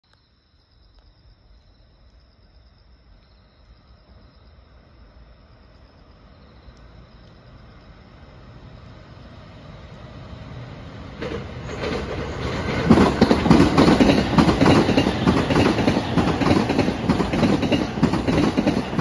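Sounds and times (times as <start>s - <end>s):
insects trilling: 0.1s - 19.0s
electric train approaching: 6.1s - 19.0s.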